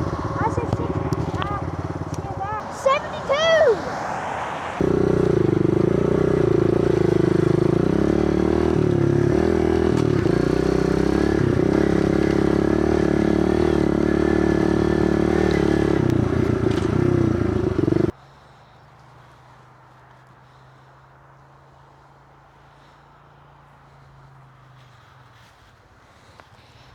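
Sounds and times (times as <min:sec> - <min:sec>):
small motorbike engine revving high: 0:00.0 - 0:18.2.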